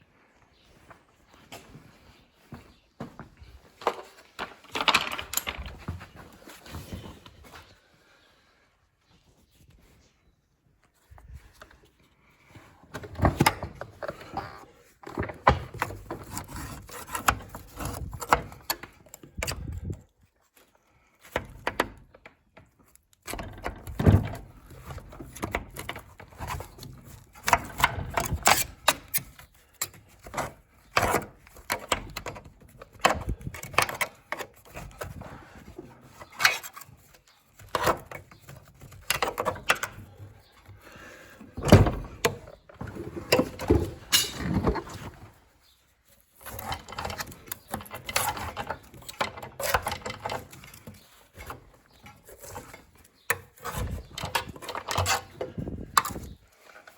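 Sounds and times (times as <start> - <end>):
tools knocking scraping and rattling: 3.8 - 7.0, 12.9 - 20.0, 21.3 - 56.9.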